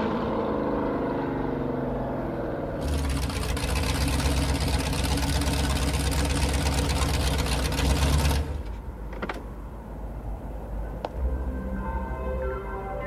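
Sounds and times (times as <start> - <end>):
car engine running loud: 0.0 - 8.8.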